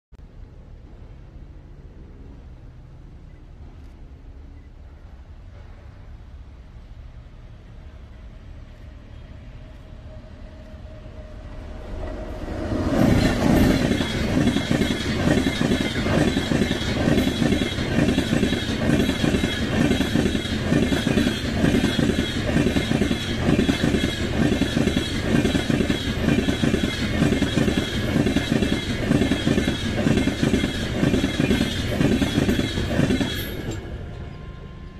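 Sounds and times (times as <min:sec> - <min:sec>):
train passing at high speed: 0:00.2 - 0:34.9
wheels clattering over rail joints: 0:12.0 - 0:34.3.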